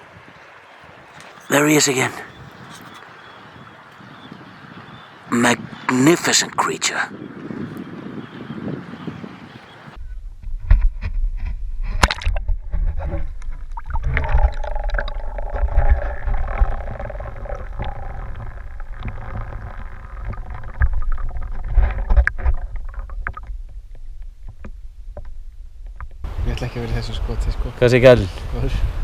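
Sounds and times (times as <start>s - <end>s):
low rumble: 12.4s - 26.7s
wavering tone: 13.8s - 21.7s.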